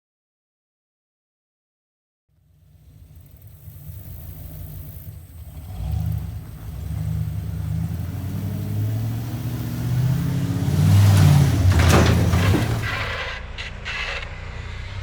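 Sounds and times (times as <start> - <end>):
truck engine revving hard: 2.8 - 13.3.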